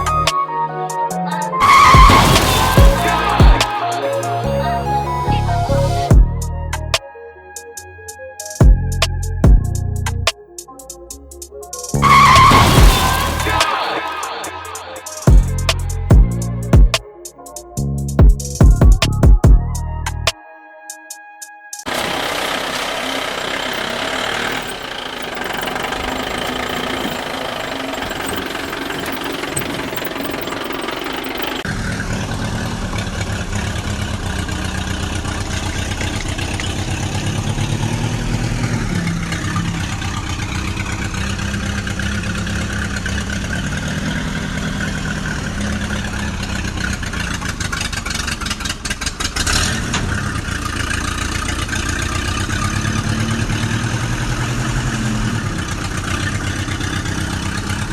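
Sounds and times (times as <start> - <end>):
tractor engine chugging: 0.0 - 6.9, 8.4 - 19.6, 21.9 - 57.9
music: 0.0 - 21.9.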